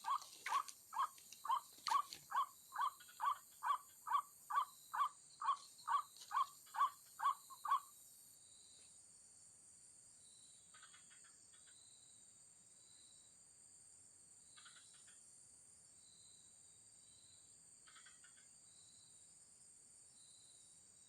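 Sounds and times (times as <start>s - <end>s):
waterhen calling: 0.0s - 7.8s.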